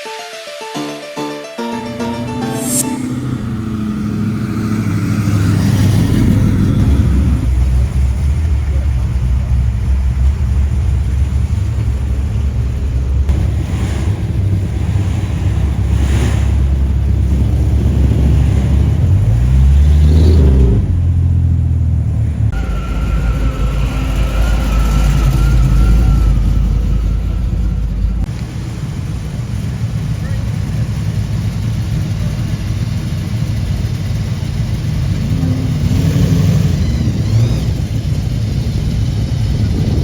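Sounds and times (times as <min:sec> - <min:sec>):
high-pitched whine: 0:01.7 - 0:07.6, 0:22.6 - 0:28.3
car engine revving: 0:01.8 - 0:28.3, 0:31.2 - 0:40.0
car engines rumbling: 0:01.8 - 0:40.0.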